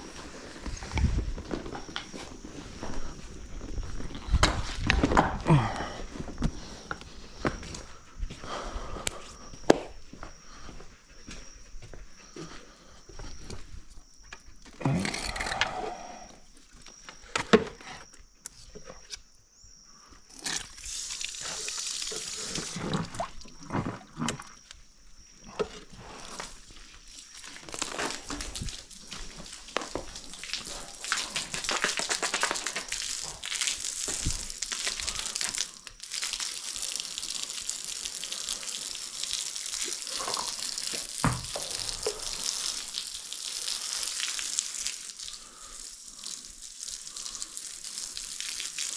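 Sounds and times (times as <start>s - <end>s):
water spraying from a hose: 20.3s - 23.6s, 26.0s - 48.9s.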